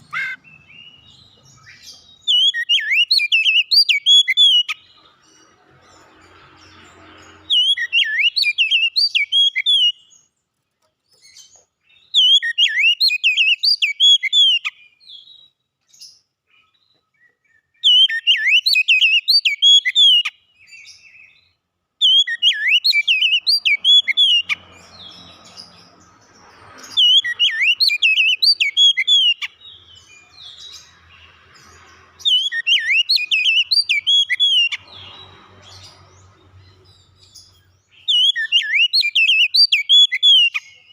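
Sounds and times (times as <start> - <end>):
bird whistled song phrases: 0.0 - 4.8, 7.5 - 10.2, 11.9 - 15.5, 16.6 - 24.6, 26.9 - 29.6, 32.2 - 34.8, 37.9 - 40.9.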